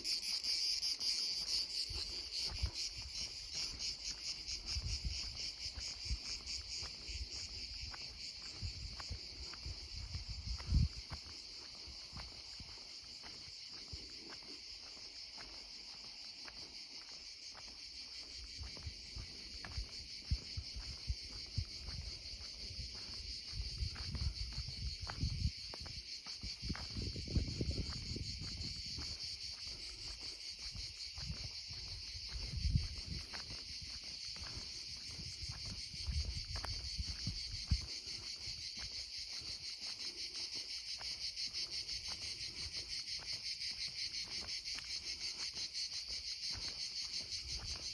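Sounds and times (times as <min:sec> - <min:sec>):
insects chorus: 0:00.0 - 0:47.9.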